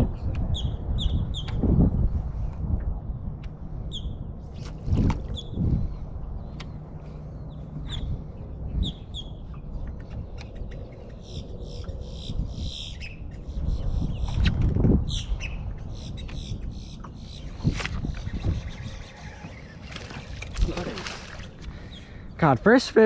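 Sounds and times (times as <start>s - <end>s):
birds chirping and calling: 5.3s - 22.4s.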